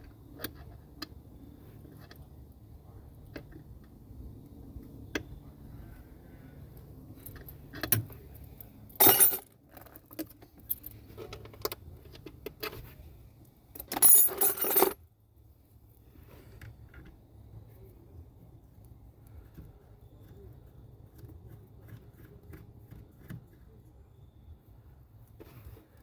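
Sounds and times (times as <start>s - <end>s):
metal clinking and rattling: 9.0s - 9.4s, 13.8s - 15.0s.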